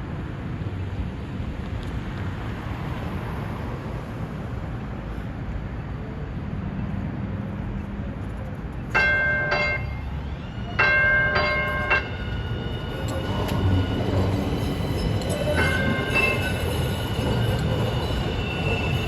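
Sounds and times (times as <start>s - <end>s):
light-rail train rumbling: 0.0s - 19.0s
train warning bell dinging: 9.0s - 19.0s.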